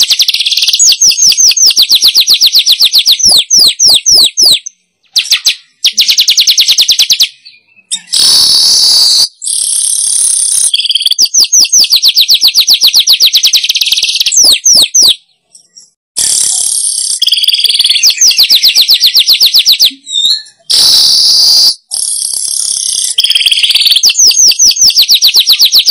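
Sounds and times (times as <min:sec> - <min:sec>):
weaver bird chattering trills: 0:00.0 - 0:25.9.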